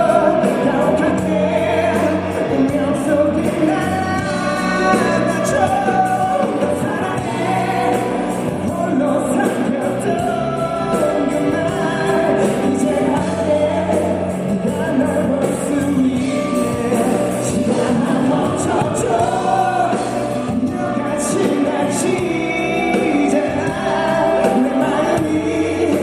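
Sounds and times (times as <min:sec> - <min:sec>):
band accompaniment: 0:00.0 - 0:26.0
man singing pop ballad: 0:00.0 - 0:26.0.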